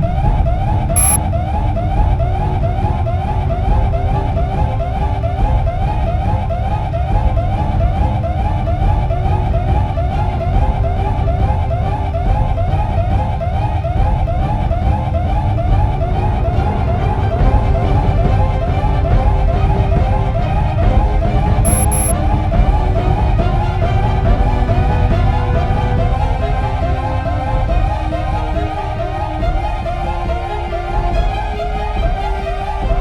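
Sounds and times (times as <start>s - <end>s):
sharp click: 1.0s - 1.2s, 21.7s - 22.1s.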